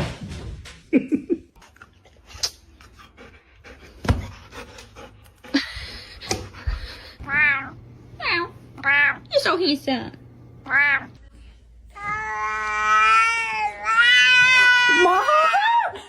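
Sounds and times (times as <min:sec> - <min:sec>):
cat meowing: 0:07.3 - 0:07.8, 0:10.7 - 0:11.1.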